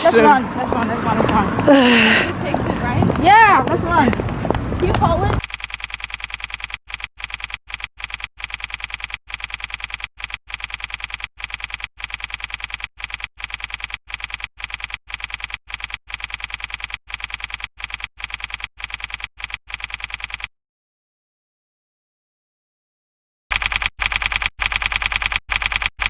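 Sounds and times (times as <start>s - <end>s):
keyboard typing clicks: 5.4s - 20.5s, 23.5s - 26.0s.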